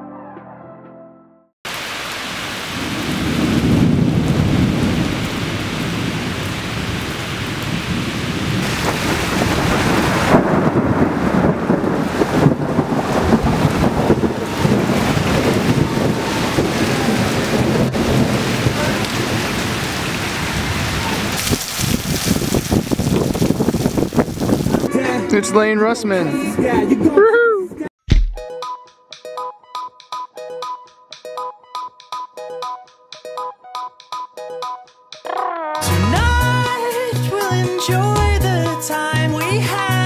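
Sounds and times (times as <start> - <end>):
gusty wind on microphone: 2.9 - 25.0
sharp crackles: 21.0 - 24.9.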